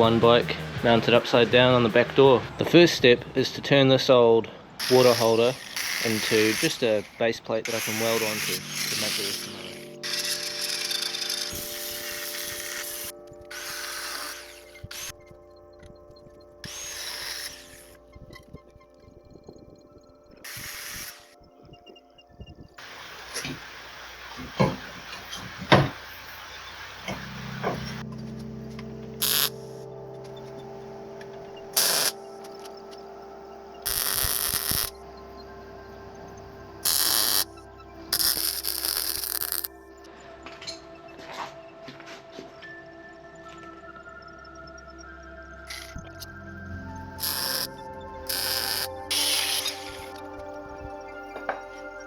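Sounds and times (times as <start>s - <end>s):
power tool cutting metal: 4.8s - 15.1s, 16.6s - 18.0s, 20.5s - 21.3s, 29.2s - 29.8s, 31.8s - 32.2s, 33.9s - 34.9s, 36.8s - 37.5s, 38.1s - 39.7s, 45.7s - 46.0s, 47.2s - 50.3s
welding crackling hiss: 4.8s - 15.1s, 16.6s - 18.0s, 20.4s - 21.4s, 29.2s - 29.9s, 31.8s - 32.3s, 33.8s - 35.0s, 36.8s - 37.5s, 38.1s - 39.7s, 45.7s - 46.0s, 47.2s - 50.4s.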